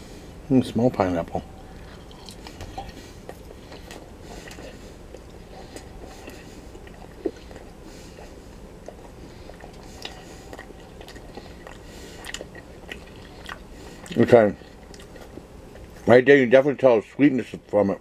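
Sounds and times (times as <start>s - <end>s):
person chewing sausage: 1.4s - 16.1s.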